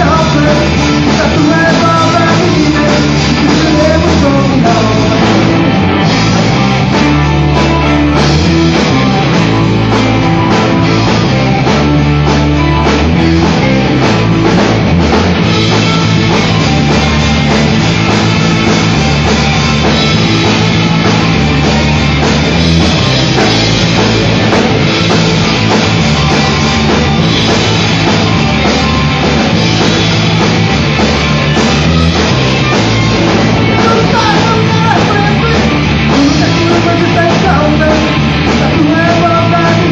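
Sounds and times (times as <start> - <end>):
loud rock band playing: 0.0 - 39.9.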